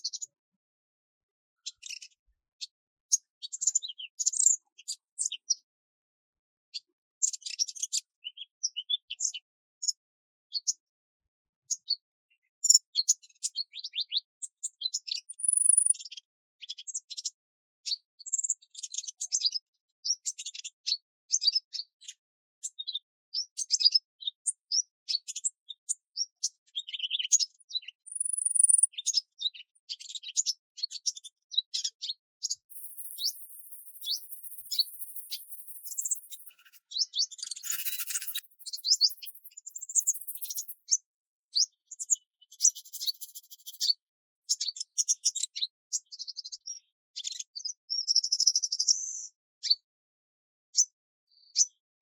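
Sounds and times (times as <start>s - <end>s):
songbirds chirping and twittering: 0.0s - 0.4s, 1.6s - 5.8s, 6.7s - 10.9s, 11.6s - 49.8s.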